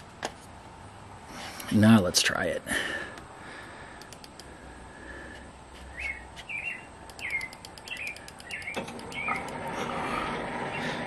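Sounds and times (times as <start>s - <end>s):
steady background noise: 0.0s - 11.0s
small bird chirping: 5.9s - 9.6s.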